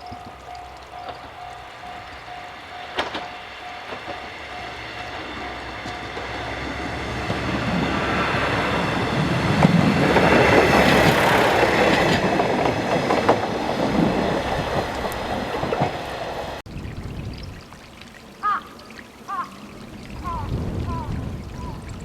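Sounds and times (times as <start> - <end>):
train passing: 0.0 - 16.6
wheels clicking over rail joints: 0.0 - 16.6.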